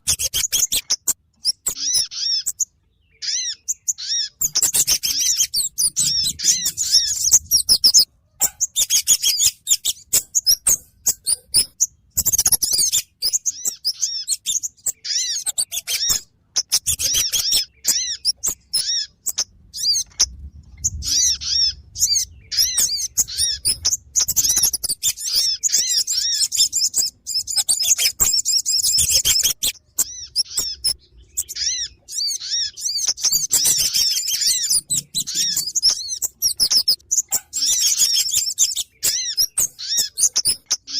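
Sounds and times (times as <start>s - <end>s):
bird-lure chirps and twitters: 0.0s - 40.9s.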